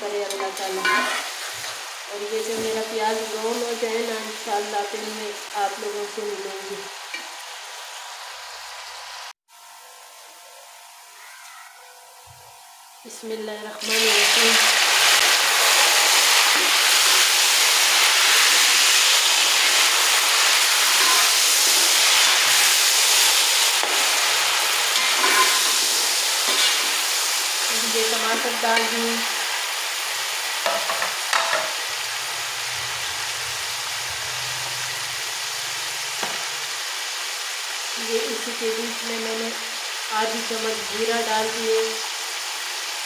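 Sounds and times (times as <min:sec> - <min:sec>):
food sizzling in a pot: 0:00.0 - 0:43.0
metal spoon scraping a pot: 0:00.3 - 0:01.8, 0:20.8 - 0:22.4, 0:24.9 - 0:27.0.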